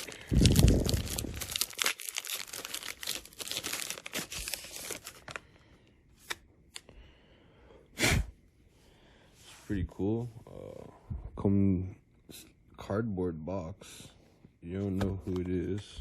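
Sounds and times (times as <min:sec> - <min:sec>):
wrapper crinkling and tearing: 0:00.0 - 0:05.5.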